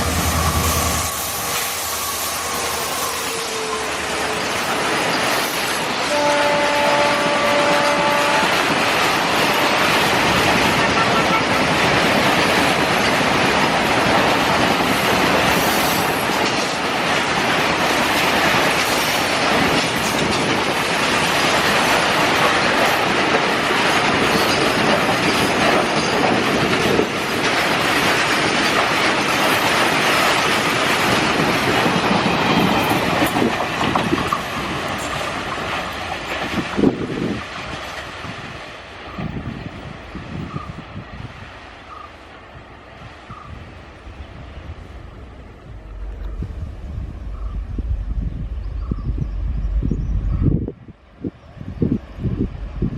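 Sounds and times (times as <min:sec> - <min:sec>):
freight train wheels on rails: 0:00.0 - 0:52.9.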